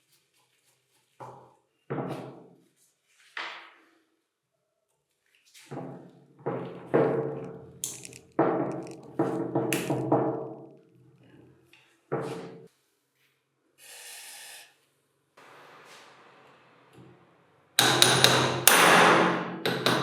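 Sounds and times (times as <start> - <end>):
hammer striking metal: 17.8 - 20.0.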